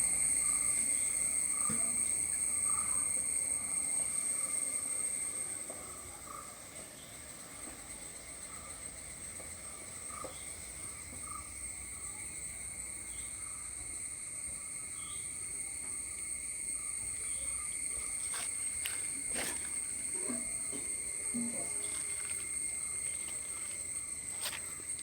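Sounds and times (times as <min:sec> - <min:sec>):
insects shrilling: 0:11.2 - 0:25.0.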